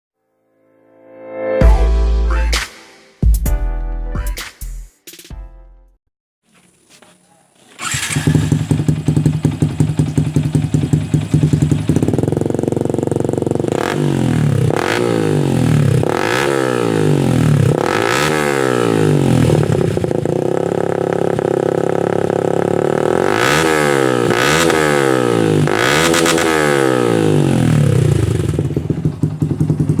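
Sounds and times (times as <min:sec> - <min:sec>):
motorcycle engine idling and revving: 0:07.7 - 0:30.0.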